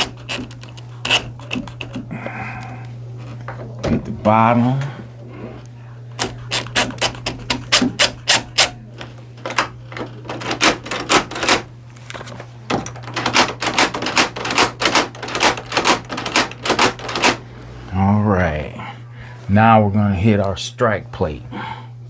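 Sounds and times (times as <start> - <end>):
screwdriver clicking: 0.0 - 2.1, 6.2 - 17.4.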